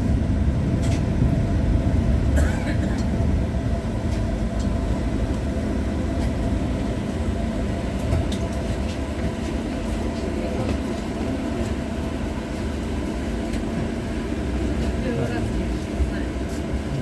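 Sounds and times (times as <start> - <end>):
tram wheels rumbling on rails: 0.0 - 17.0.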